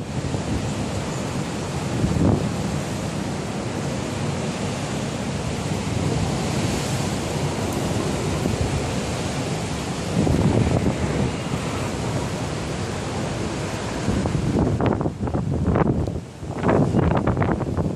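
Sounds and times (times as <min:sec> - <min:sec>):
strong wind buffeting microphone: 0:00.0 - 0:17.9.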